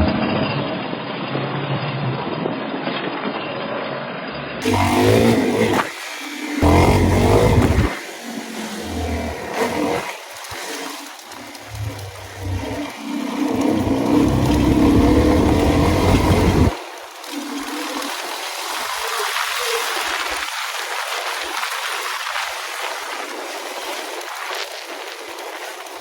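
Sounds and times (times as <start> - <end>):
dirt bike engine running: 4.6 - 16.8
steady rushing noise: 4.6 - 17.8.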